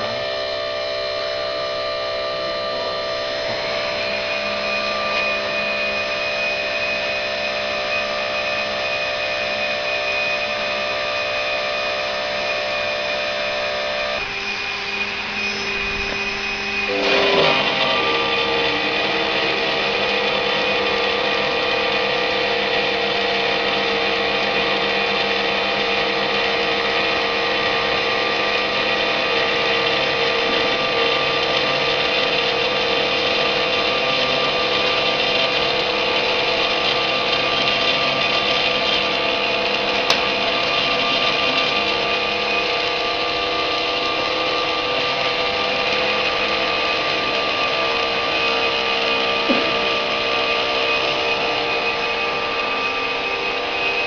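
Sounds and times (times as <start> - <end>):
machine spindle whining: 0.0 - 54.0.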